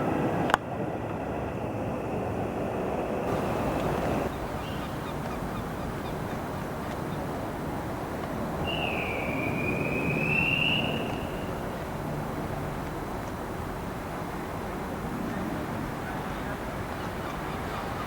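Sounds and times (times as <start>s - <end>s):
train rolling noise: 0.0s - 18.0s
high-pitched train squeal: 8.6s - 11.8s.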